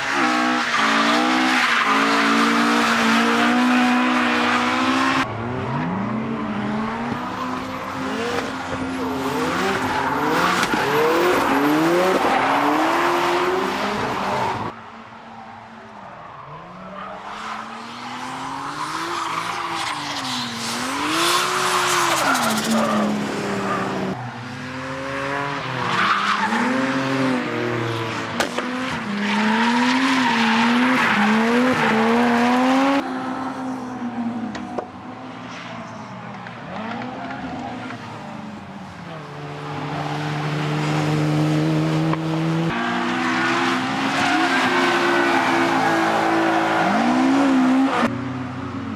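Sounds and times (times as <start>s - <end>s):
tyres squealing and skidding: 0.0s - 6.4s, 7.0s - 24.8s, 25.5s - 27.4s, 28.5s - 33.0s, 42.7s - 48.1s
car engines revving: 0.0s - 48.9s.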